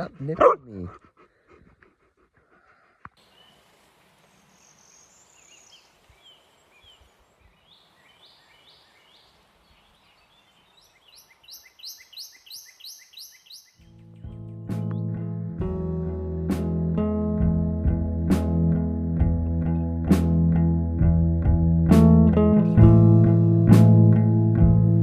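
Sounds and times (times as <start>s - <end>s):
small birds chirping: 2.6s - 15.1s
outdoor background hiss: 3.1s - 14.0s.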